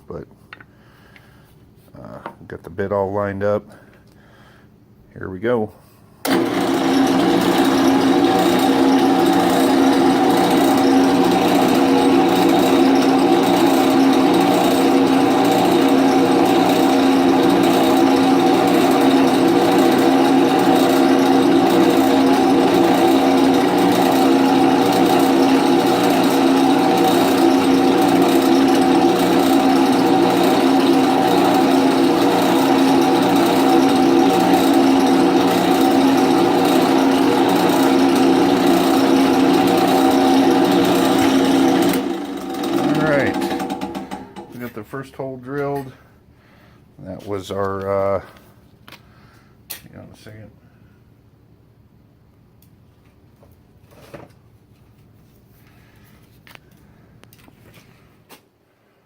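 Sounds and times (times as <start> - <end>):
drill press drilling into metal: 6.2 - 44.8.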